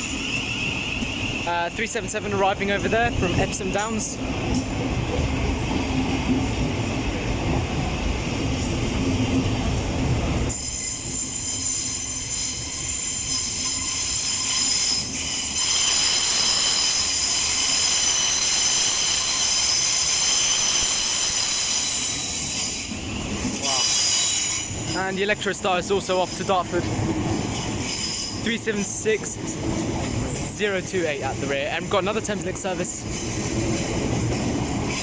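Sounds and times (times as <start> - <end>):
train wheels squealing: 0.0 - 4.8, 10.3 - 26.8, 27.5 - 31.0, 32.8 - 35.0
train rumbling: 0.0 - 35.0.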